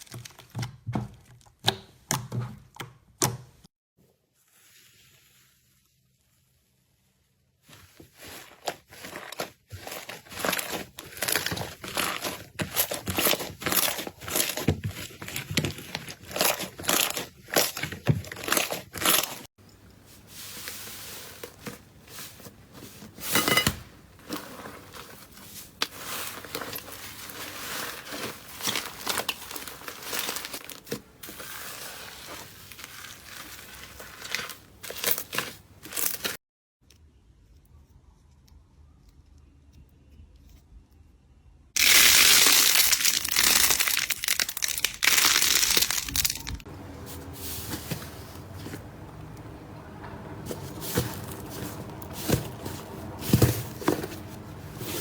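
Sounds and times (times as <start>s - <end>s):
slime crackling and popping: 41.8s - 46.6s.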